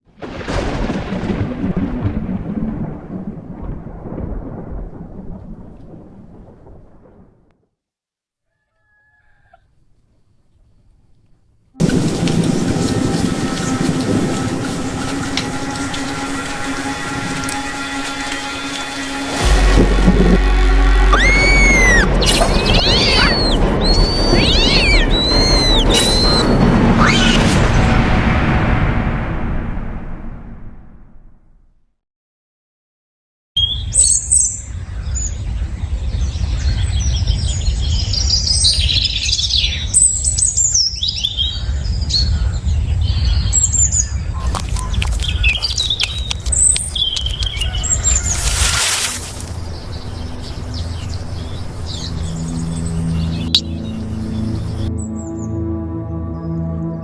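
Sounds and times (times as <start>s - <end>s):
thunder crash and rumble: 0.2s - 7.5s, 11.8s - 16.0s, 19.3s - 31.5s
falling chirps: 19.4s - 27.7s
high animal cries: 21.1s - 27.6s.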